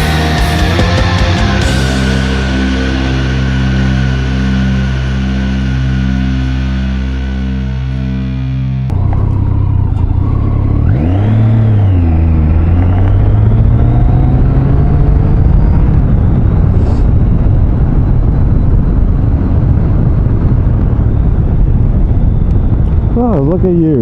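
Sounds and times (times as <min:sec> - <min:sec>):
motorcycle engine revving: 0:00.0 - 0:23.3
road noise: 0:00.0 - 0:24.0
wind noise: 0:08.9 - 0:24.0.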